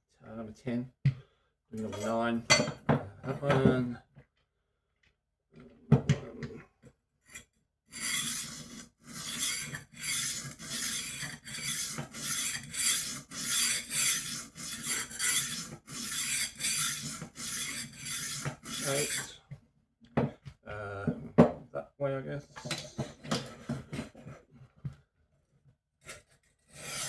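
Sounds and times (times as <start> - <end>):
knife sharpener grinding: 7.3 - 19.4, 26.0 - 27.0.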